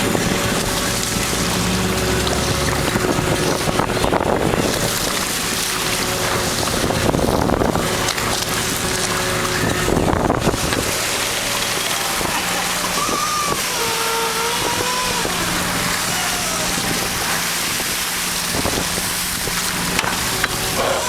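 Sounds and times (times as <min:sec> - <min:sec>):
boat engine hum: 0:00.0 - 0:21.0
wind and water noise: 0:00.0 - 0:21.0
wavering high-pitched whines: 0:09.5 - 0:18.2.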